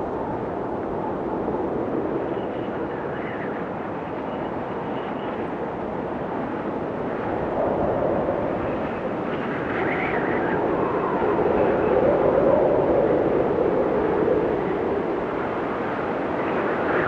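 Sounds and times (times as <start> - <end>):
blizzard wind gusting: 0.0 - 17.0.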